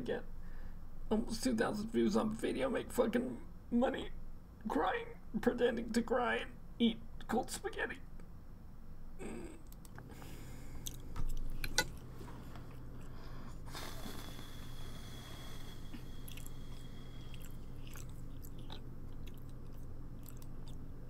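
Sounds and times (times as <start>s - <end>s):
low steady hum: 0.0s - 21.0s
woman chewing food: 9.7s - 21.0s.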